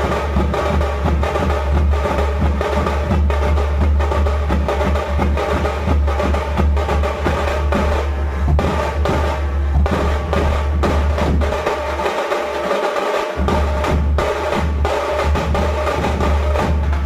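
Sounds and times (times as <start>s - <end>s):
folk drums playing fast rhythm: 0.0s - 17.0s
steady pitched tones: 5.8s - 12.0s.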